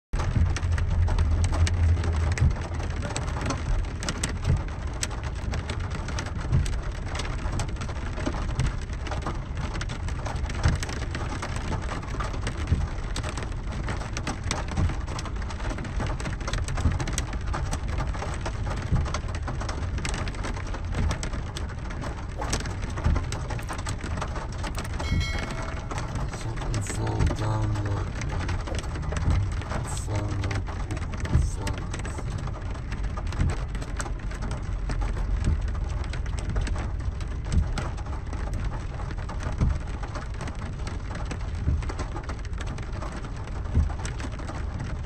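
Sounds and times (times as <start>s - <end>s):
rain on car roof: 0.2s - 45.0s
low rumble: 21.8s - 37.7s.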